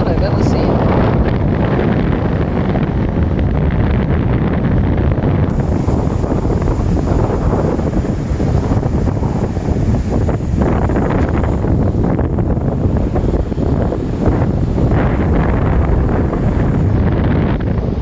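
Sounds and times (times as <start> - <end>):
strong wind buffeting microphone: 0.0 - 18.0
surf breaking: 5.5 - 18.0.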